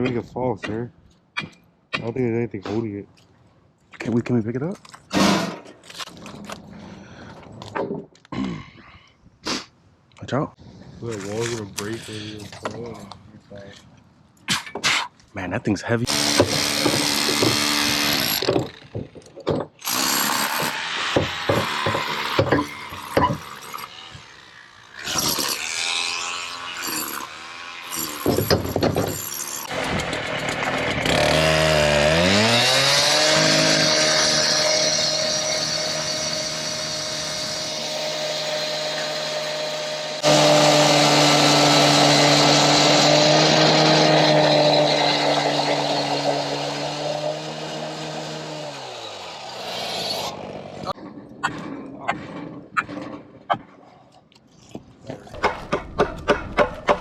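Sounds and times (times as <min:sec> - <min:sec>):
power tool motor whine: 0:16.1 - 0:19.0, 0:19.8 - 0:50.9
knocks and clatter: 0:18.4 - 0:19.8, 0:28.2 - 0:31.1, 0:55.4 - 0:57.0.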